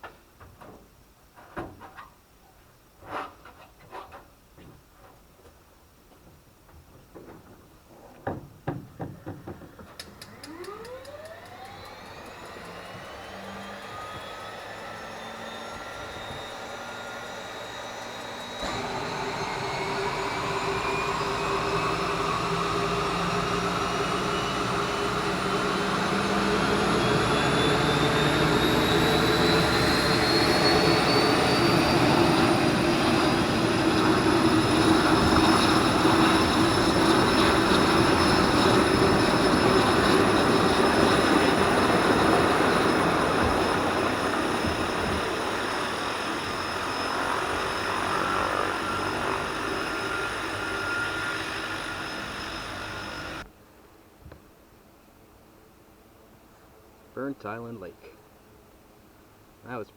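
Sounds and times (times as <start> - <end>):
turboprop engine whine: 9.3 - 53.5.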